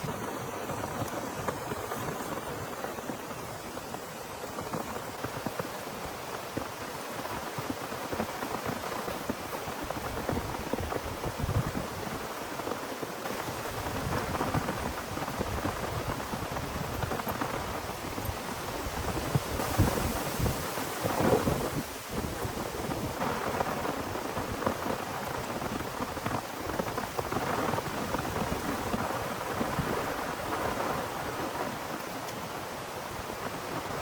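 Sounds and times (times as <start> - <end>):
heavy rain pattering: 0.0 - 34.0.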